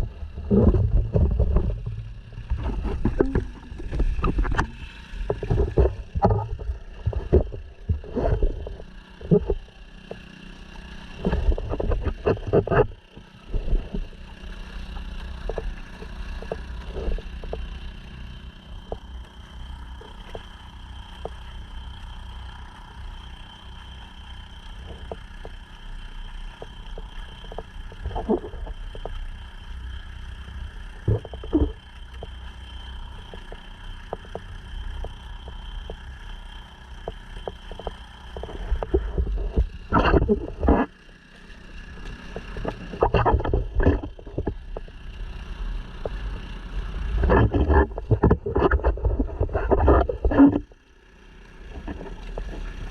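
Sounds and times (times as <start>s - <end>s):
wind thumping against camera: 0.0s - 9.6s, 47.2s - 50.7s
outboard motor running: 0.0s - 52.9s.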